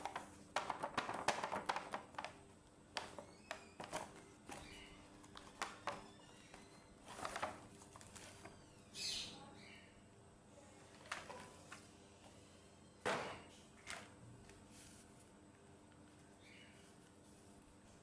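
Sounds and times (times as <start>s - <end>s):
plastic toys clicking and tapping: 0.0s - 4.1s, 5.3s - 6.1s
packaging rustling: 3.0s - 8.5s.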